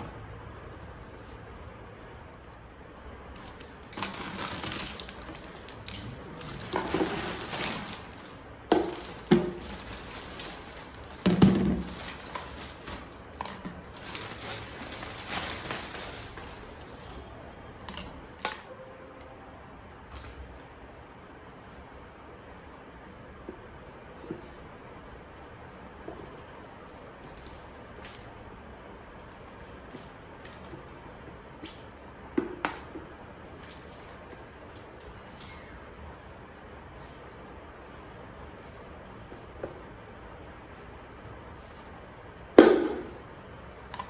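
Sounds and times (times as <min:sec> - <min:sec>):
rustling and scraping objects: 0:02.4 - 0:18.6.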